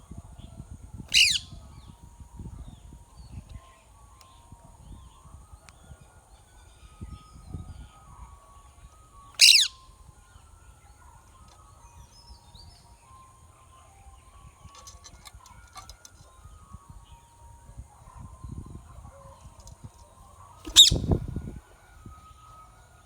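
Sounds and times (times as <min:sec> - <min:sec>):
parakeet screech: 0:01.1 - 0:01.4, 0:09.4 - 0:09.7, 0:20.7 - 0:21.2
bird chirps and whistles: 0:01.1 - 0:01.6, 0:09.4 - 0:09.8, 0:20.7 - 0:21.2.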